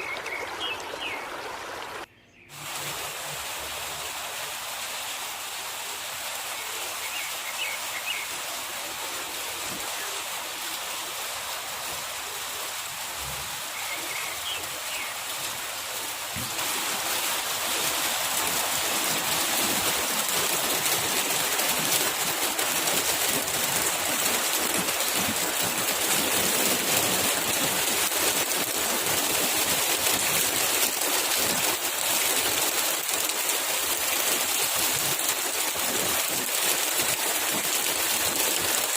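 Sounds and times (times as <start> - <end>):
river water rushing: 0.0 - 11.2, 13.8 - 38.9.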